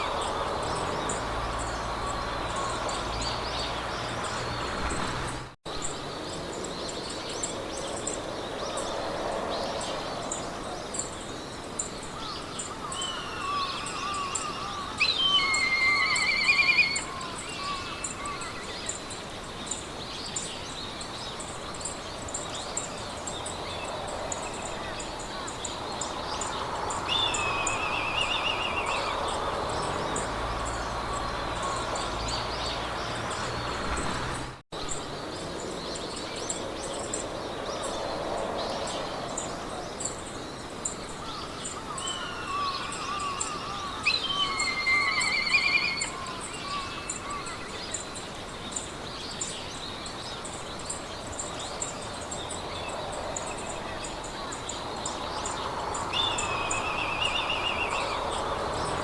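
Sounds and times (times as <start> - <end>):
songbirds singing: 0.0 - 59.0
wind in grass: 0.0 - 59.0.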